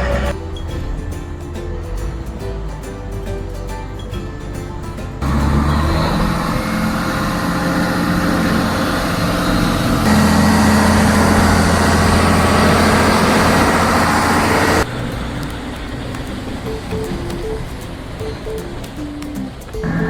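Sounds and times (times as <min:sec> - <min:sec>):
diesel engine running under load: 0:00.0 - 0:20.0.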